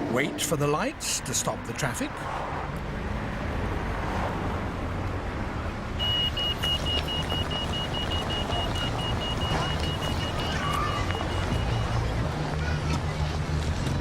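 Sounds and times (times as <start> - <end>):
road traffic: 0.0 - 14.0
crossing signal beeping: 6.0 - 12.0.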